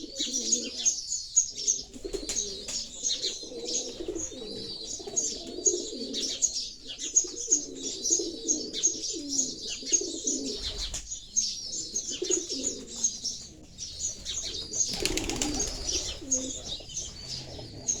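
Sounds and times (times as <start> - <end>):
pigeons cooing: 0.0 - 18.0
sparrows chirping: 0.0 - 18.0.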